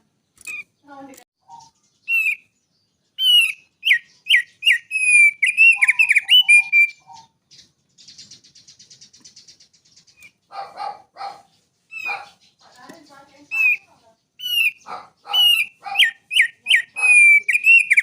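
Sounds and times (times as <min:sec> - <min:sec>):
songbird whistling: 0:01.4 - 0:10.4, 0:11.9 - 0:12.4, 0:13.4 - 0:18.0.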